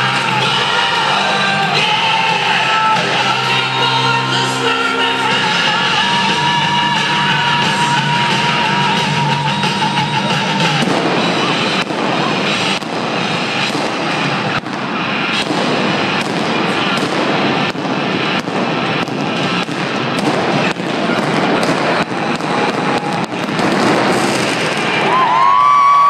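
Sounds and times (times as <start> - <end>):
fireworks sharp bangs: 0.0 - 25.6
fireworks crackling hiss: 10.5 - 25.3.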